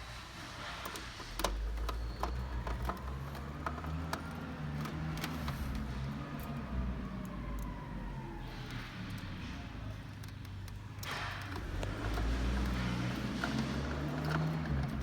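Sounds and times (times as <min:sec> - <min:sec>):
screwdriver clicking on plastic: 0:00.8 - 0:06.6, 0:10.1 - 0:15.0.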